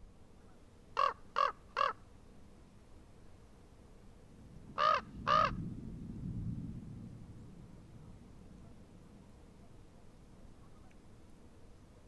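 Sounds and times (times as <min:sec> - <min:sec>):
bird calling: 0:00.4 - 0:02.0, 0:04.8 - 0:05.6.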